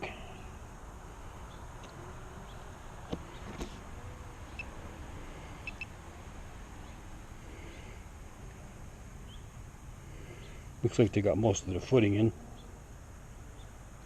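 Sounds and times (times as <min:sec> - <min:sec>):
short high chirps: 0:05.6 - 0:05.9.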